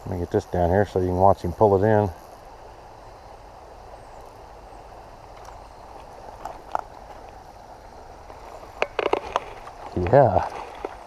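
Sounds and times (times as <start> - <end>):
creek water running: 0.0 - 11.0.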